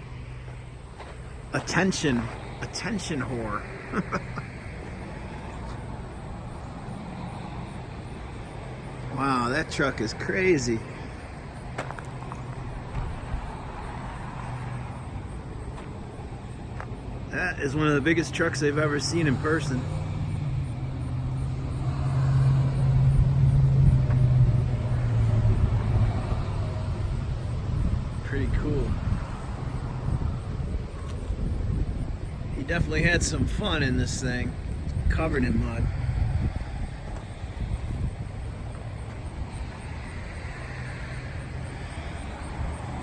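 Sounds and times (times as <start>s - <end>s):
vehicle engine humming: 0.0s - 43.0s.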